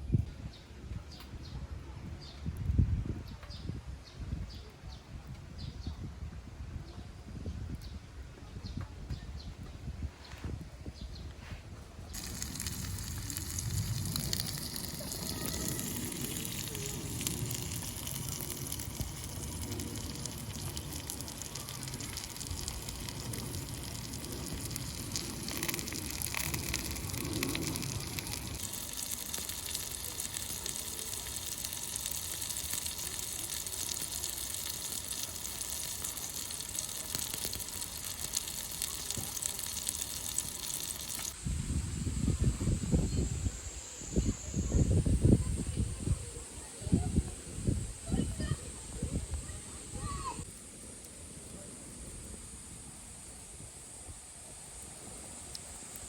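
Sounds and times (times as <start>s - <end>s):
wood fire crackling and hissing: 11.3s - 56.0s.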